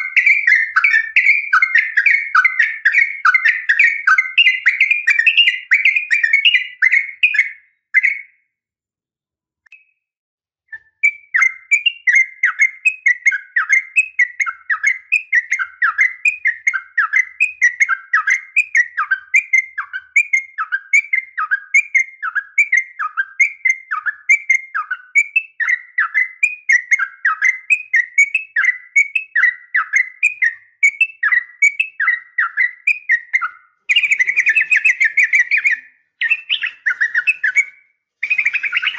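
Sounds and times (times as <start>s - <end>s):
bird chattering: 0.0s - 8.2s, 31.2s - 38.9s
downward-slurred bird notes: 0.0s - 8.3s, 31.2s - 38.9s.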